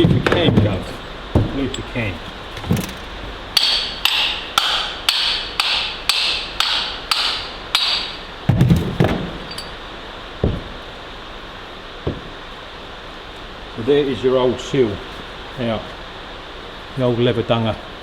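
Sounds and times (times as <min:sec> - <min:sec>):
hammer strikes with metallic ring: 0:03.6 - 0:08.3.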